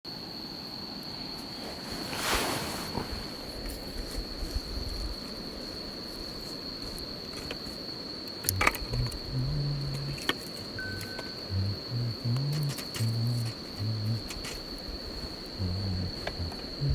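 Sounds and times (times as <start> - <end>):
insect trilling: 4.4 - 16.9
dove cooing: 8.5 - 16.9.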